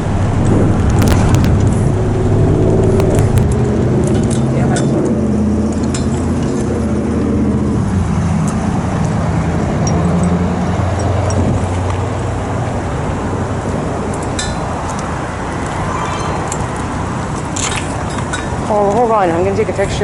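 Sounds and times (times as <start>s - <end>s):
steady low hum: 0.0s - 19.4s
road and traffic noise: 0.0s - 20.0s
vehicle engine running: 0.0s - 20.0s.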